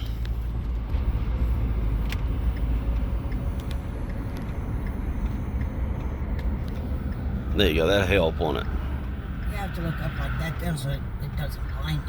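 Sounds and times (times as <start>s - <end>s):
engine and road rumble: 0.0s - 12.0s
faint ticks: 2.1s - 7.3s.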